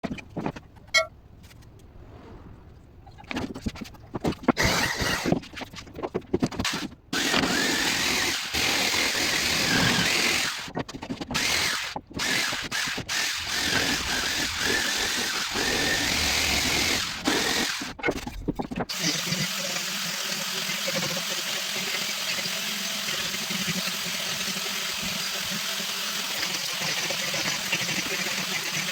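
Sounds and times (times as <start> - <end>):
power tools working wood: 4.6 - 5.4, 6.6 - 18.2, 18.9 - 28.9.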